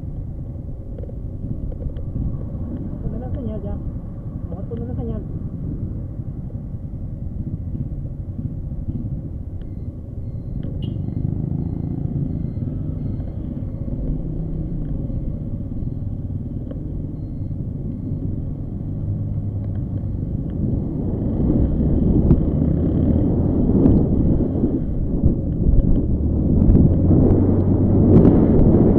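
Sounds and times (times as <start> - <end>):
wind on microphone: 0.0 - 9.5, 17.7 - 28.9
motorcycle engine rumble: 0.0 - 28.9.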